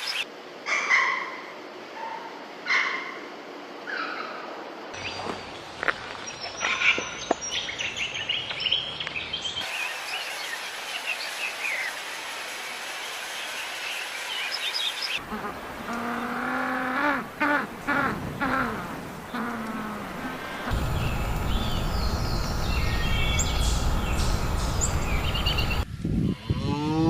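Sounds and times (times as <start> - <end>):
outdoor background noise: 0.0 - 27.0
birds chirping: 13.3 - 25.9.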